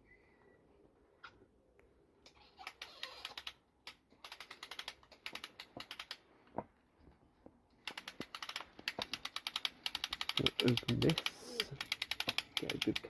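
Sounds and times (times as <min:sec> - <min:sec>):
ratchet clicking of crank handle: 0:02.6 - 0:06.2, 0:07.8 - 0:13.0.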